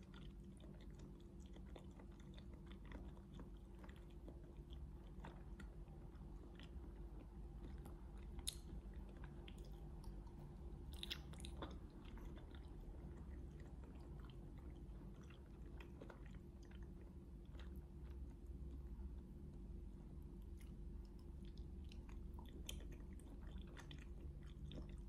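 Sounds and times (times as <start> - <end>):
chewing and crunching food: 0.0 - 25.0.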